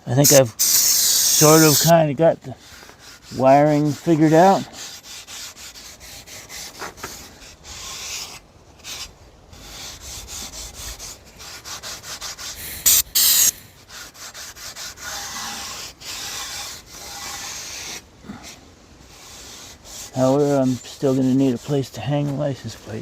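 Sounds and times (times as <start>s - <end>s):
abrasive pad scrubbing metal: 0.2s - 2.0s, 11.5s - 17.6s
short loud noise bursts: 12.6s - 14.0s.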